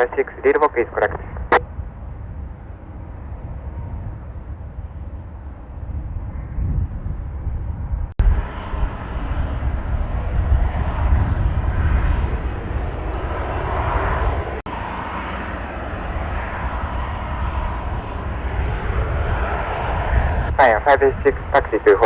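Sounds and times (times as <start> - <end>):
airliner engines rumbling: 0.0 - 22.0
wind buffeting microphone: 0.0 - 22.0.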